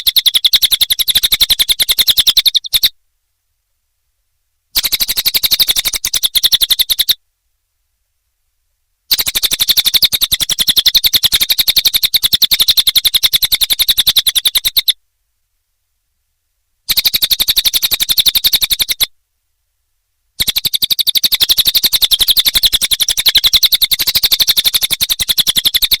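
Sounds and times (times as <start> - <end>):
songbird fast trills: 0.0 - 3.0, 4.8 - 7.2, 9.1 - 15.0, 20.4 - 26.0.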